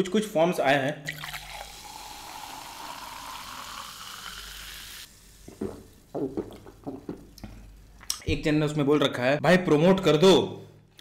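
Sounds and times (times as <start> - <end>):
soda fizzing in a glass: 1.1 - 6.5.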